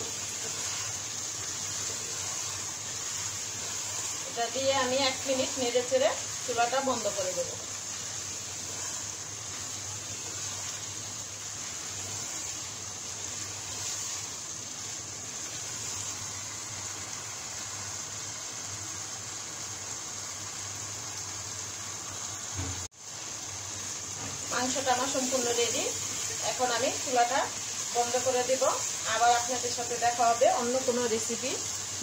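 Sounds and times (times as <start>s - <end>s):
spatula stirring pot: 0.0s - 16.1s
curry sizzling in oil: 0.0s - 32.0s.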